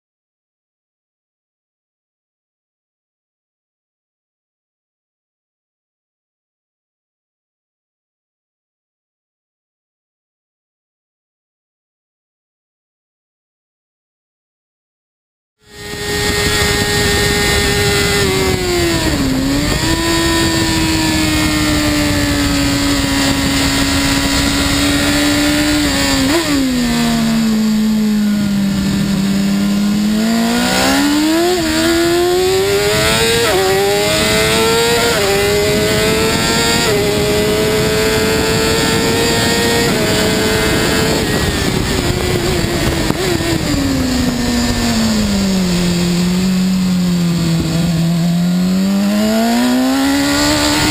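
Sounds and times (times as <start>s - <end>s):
motorcycle engine revving hard: 15.6s - 50.9s.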